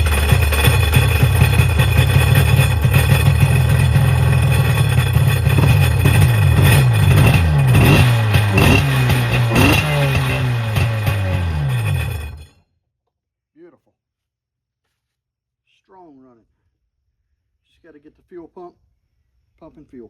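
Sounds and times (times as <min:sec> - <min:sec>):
jet ski engine revving: 0:00.0 - 0:12.5.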